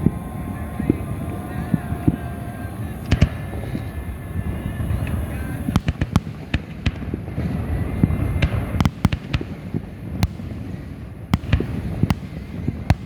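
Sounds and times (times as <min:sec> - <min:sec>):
fireworks bangs and cracks: 0:00.0 - 0:13.0
rumble of distant explosions: 0:00.0 - 0:13.0.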